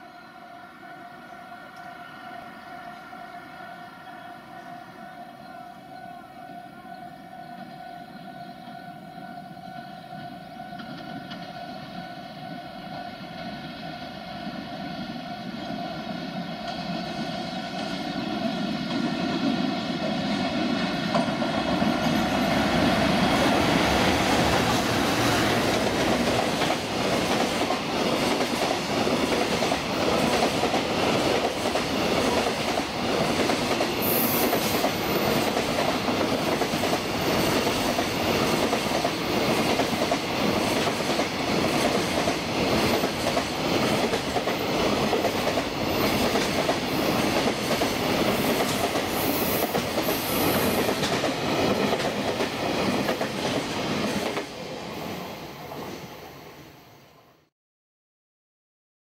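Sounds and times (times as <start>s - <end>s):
freight train passing: 0.0s - 57.5s.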